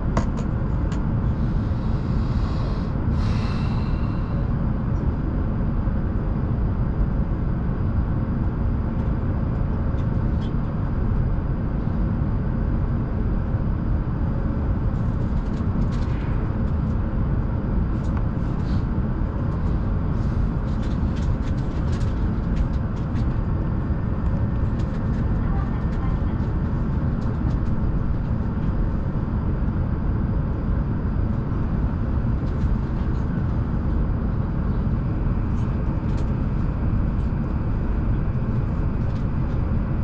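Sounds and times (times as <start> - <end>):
train cabin rumble: 19.5 - 29.1.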